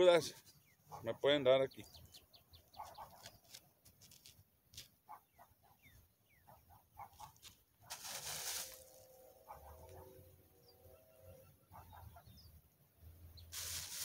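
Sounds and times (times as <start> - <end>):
bird calls: 0.4 - 3.6, 5.1 - 7.4, 9.4 - 12.6
rustle: 7.3 - 9.2, 13.4 - 14.0.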